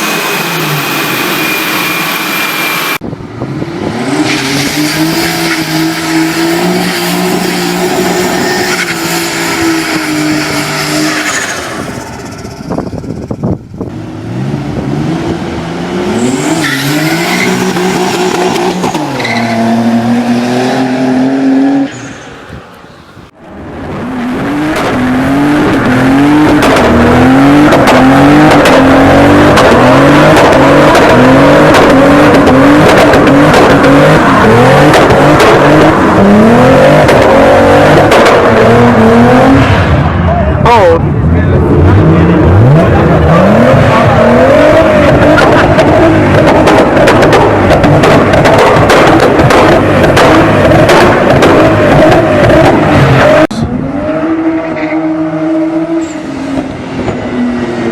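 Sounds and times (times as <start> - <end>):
sports car engine revving: 23.8 - 40.2, 40.8 - 57.9.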